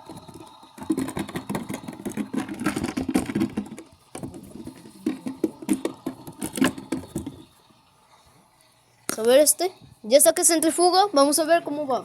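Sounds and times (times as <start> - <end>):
washing machine spin rattling: 0.0 - 8.0.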